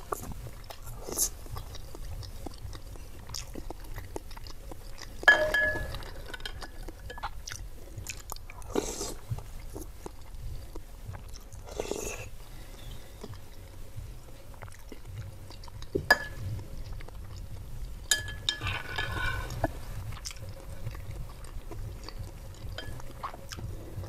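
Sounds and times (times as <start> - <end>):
chewing and wet mouth sounds: 0.0 - 24.0
metal spoon clinking glass bowl: 5.3 - 7.2, 16.1 - 16.4, 18.1 - 19.6, 22.8 - 23.0.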